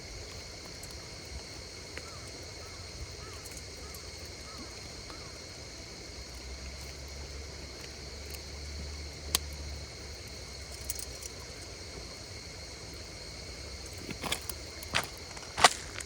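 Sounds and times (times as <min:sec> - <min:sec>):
campfire rustle: 0:00.0 - 0:16.0
crickets chirring: 0:00.0 - 0:16.0
burning wood popping: 0:06.1 - 0:16.0.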